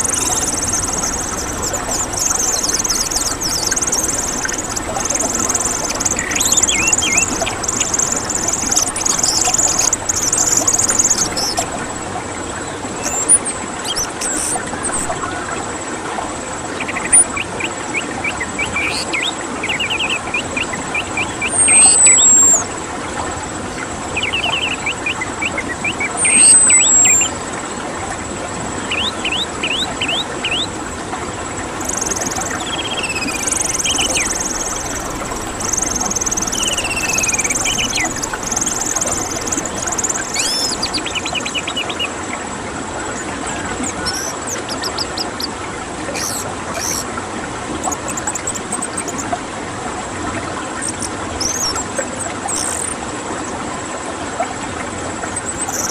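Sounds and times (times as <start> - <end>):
thrush singing: 0.0 - 11.9, 29.7 - 42.1
steady background hiss: 0.0 - 49.0.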